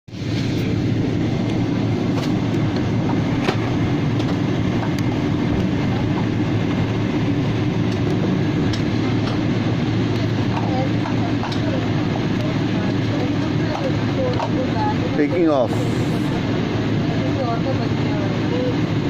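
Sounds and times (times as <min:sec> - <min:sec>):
aircraft engines and wheels rumbling: 0:00.1 - 0:19.0
low hum: 0:00.1 - 0:19.0.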